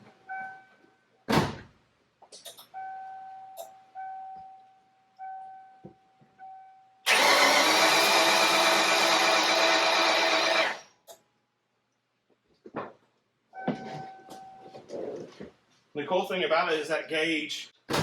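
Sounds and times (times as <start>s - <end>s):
car engine cranking on starter: 7.1s - 10.8s.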